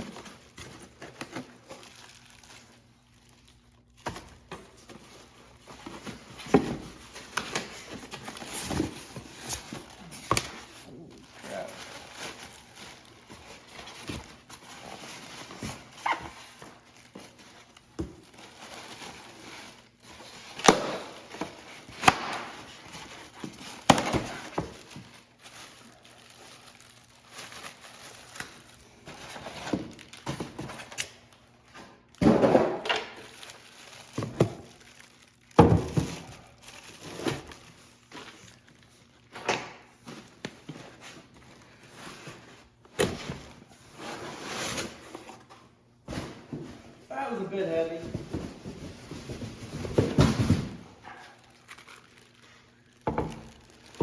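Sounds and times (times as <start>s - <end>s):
thumps and knocks of boxes: 5.7s - 10.6s, 20.6s - 25.0s, 32.2s - 33.1s, 34.2s - 34.7s, 35.6s - 36.3s, 48.0s - 51.0s.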